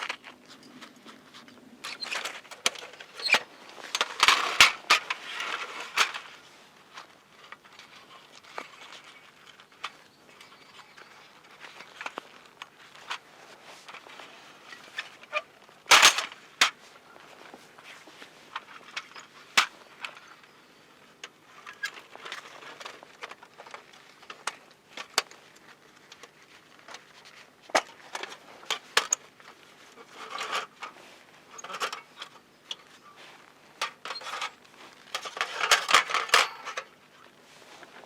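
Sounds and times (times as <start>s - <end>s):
rustling and scraping: 0.0s - 38.0s
cooking gear clicks and knocks: 1.8s - 6.3s, 33.8s - 37.4s.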